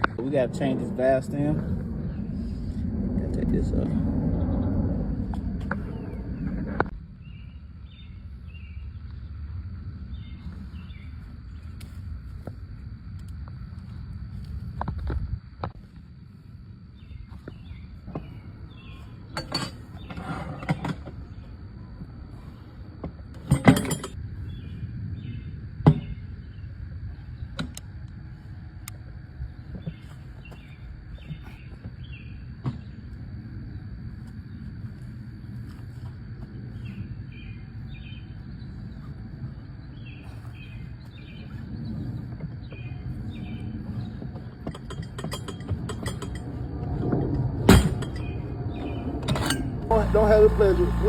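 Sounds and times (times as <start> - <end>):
low rumble: 0.0 - 20.0, 24.1 - 51.0
outdoor background noise: 0.0 - 51.0
metal tools clinking: 19.4 - 19.9, 23.4 - 24.2, 44.6 - 46.6, 49.2 - 49.8.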